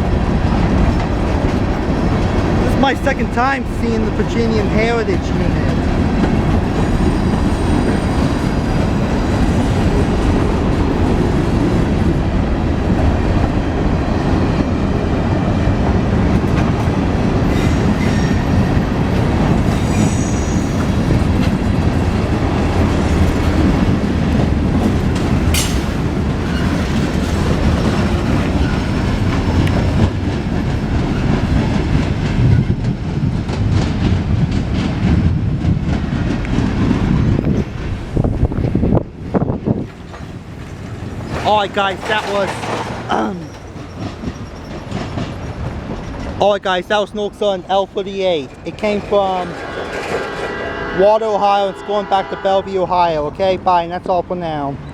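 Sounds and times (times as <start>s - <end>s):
freight train rumbling: 0.0s - 54.9s
wheels clacking over rail joints: 0.3s - 50.6s
wheel squeals: 6.8s - 10.0s, 17.4s - 21.2s, 25.5s - 30.0s, 40.7s - 46.3s.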